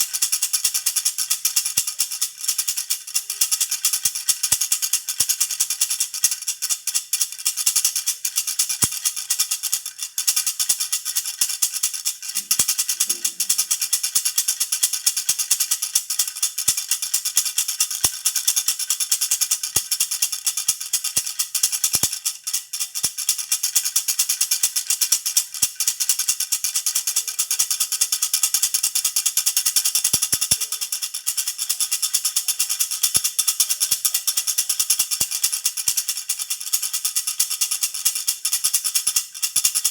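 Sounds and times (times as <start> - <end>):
baby rattle jingling: 7.4 - 24.2, 24.8 - 39.9.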